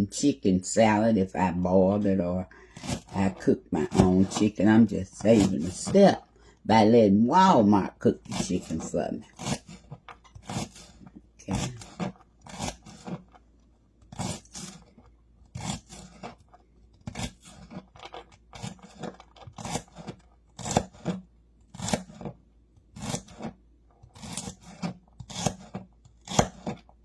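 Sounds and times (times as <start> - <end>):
knife chopping on cutting board: 19.6 - 22.4, 24.2 - 26.8.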